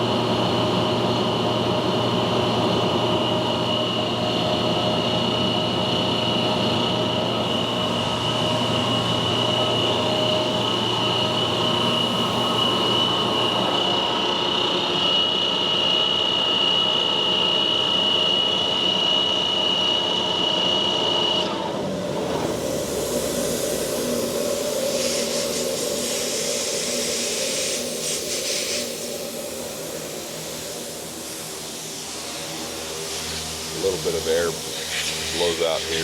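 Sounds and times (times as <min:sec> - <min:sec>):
air compressor whine: 0:00.0 - 0:36.0
hiss of air: 0:22.6 - 0:36.0.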